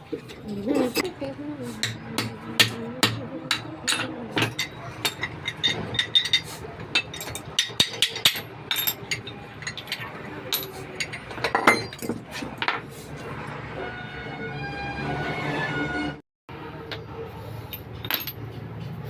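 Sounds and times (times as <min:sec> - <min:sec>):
hammer tapping on metal: 0:01.8 - 0:09.8.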